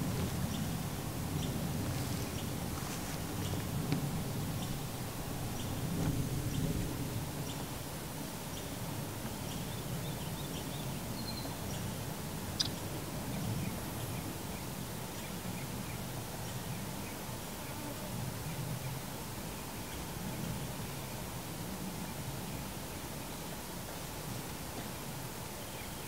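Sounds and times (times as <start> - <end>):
small birds chirping: 0.0 - 3.8, 8.5 - 17.8
steady low rumble: 0.0 - 15.6.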